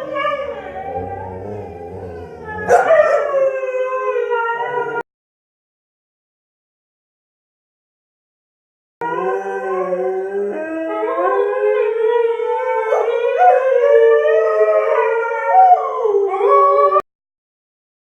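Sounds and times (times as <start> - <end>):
dogs howling: 0.0 - 5.0, 9.0 - 17.0.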